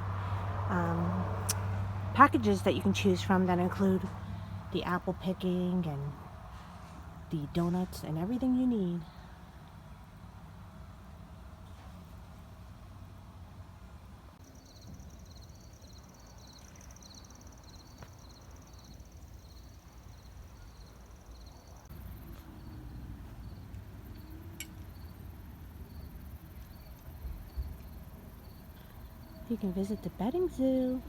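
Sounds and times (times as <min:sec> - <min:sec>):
crickets chirping: 0:14.4 - 0:31.0.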